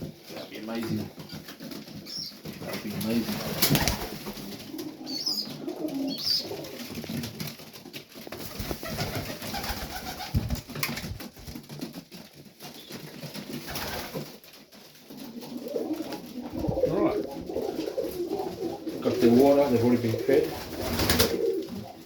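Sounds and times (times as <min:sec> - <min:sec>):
pigeons cooing: 0:00.6 - 0:07.5, 0:15.0 - 0:22.0.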